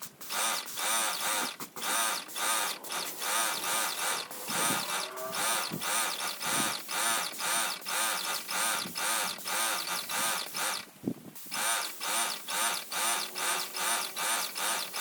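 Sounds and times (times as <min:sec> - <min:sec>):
paint sprayer pump running: 0:00.0 - 0:15.0.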